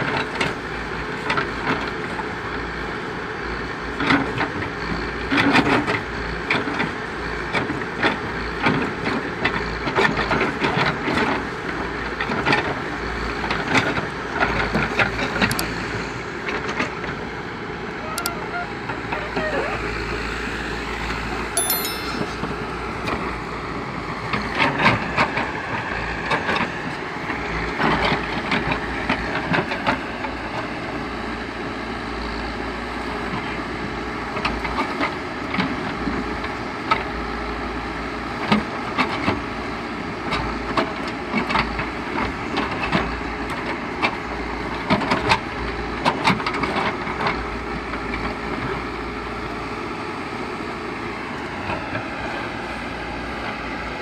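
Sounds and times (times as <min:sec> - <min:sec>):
backhoe engine running: 0:00.0 - 0:21.5, 0:22.5 - 0:54.0.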